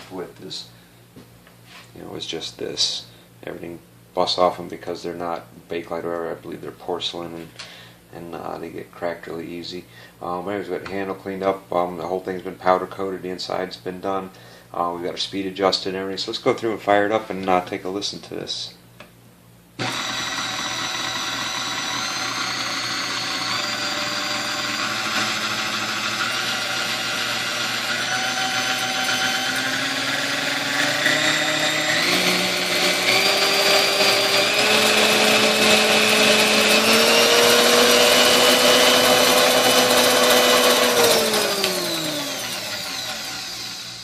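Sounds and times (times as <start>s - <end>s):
stand mixer motor whining: 19.8s - 44.0s.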